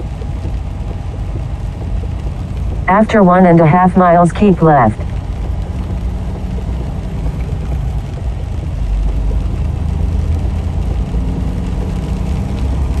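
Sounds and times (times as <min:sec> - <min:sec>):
road and tyre noise: 0:00.0 - 0:13.0
truck engine drone: 0:00.0 - 0:13.0.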